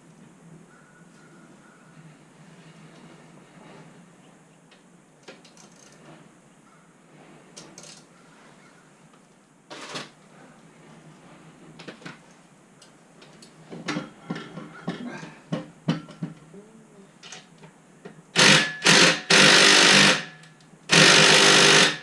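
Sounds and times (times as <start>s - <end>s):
air tool bursts: 18.4s - 22.0s.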